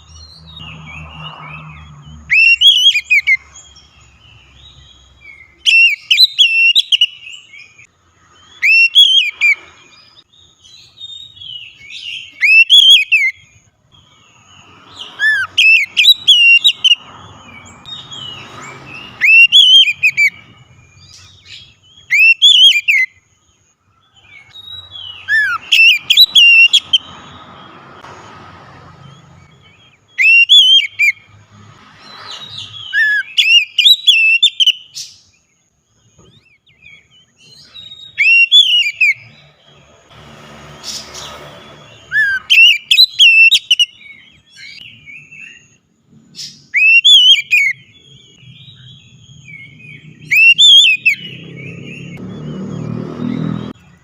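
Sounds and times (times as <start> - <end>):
bird singing whistled phrases: 2.3 - 3.4, 4.8 - 7.7, 8.5 - 9.6, 10.8 - 13.5, 15.0 - 17.0, 19.0 - 23.2, 24.6 - 27.1, 30.1 - 31.2, 32.4 - 35.2, 36.4 - 39.3, 42.1 - 45.7, 46.6 - 53.0.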